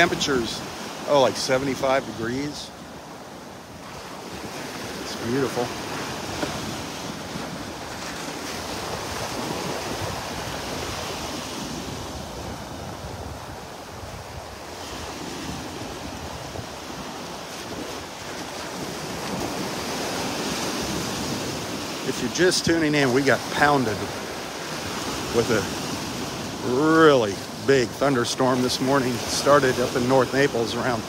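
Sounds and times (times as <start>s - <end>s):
surf washing onto beach: 0.0s - 31.0s
wind rushing on microphone: 3.8s - 27.7s.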